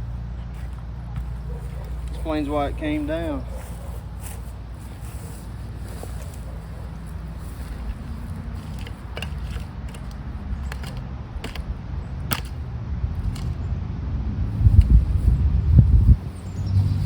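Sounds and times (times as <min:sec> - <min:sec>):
petrol engine humming: 0:00.0 - 0:17.0
scattered clicks: 0:06.3 - 0:12.6.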